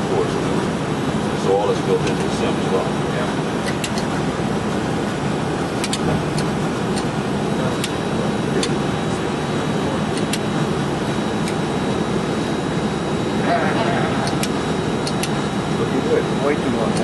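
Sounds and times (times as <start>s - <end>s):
simulated engine and airflow rumble: 0.0s - 17.0s
sharp clicks: 3.6s - 4.1s, 5.8s - 7.1s, 10.2s - 10.4s, 14.2s - 15.4s.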